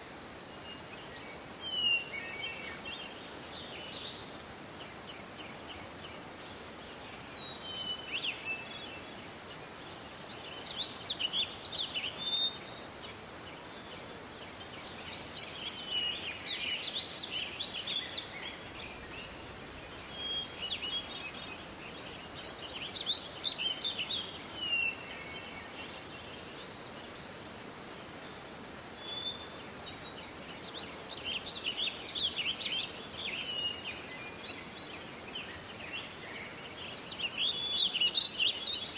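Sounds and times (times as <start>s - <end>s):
steady hiss: 0.0s - 38.9s
songbird twittering: 1.2s - 5.8s, 13.7s - 26.4s.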